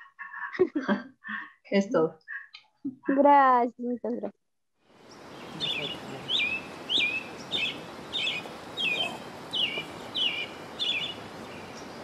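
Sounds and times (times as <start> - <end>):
outdoor background hiss: 4.8 - 12.0
bird calling with sweeping notes: 5.1 - 12.0.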